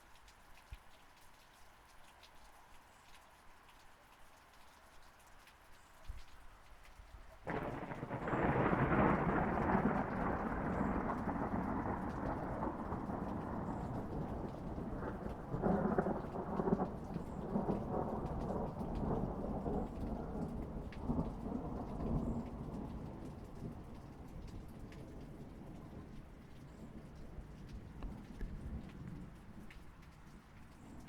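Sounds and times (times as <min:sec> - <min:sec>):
steady rain: 0:00.0 - 0:31.0
thunder clap and rumble: 0:07.5 - 0:31.0.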